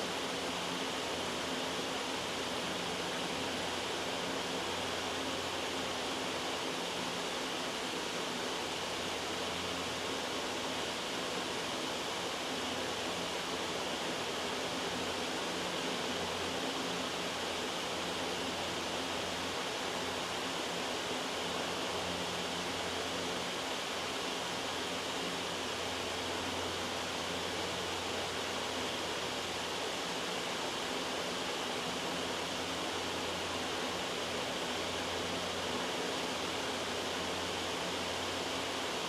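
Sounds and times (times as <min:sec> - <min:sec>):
white noise hiss: 0:00.0 - 0:39.0.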